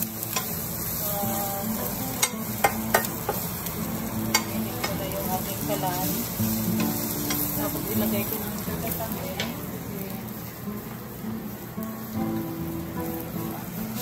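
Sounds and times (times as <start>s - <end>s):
utensil tapping a griddle: 0.0s - 0.6s, 1.7s - 8.4s, 9.3s - 9.6s
onions sizzling on a griddle: 0.0s - 14.0s.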